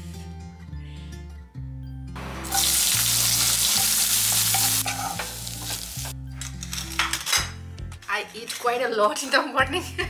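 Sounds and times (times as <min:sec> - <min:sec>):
onion sizzling in hot oil: 0:02.2 - 0:06.2.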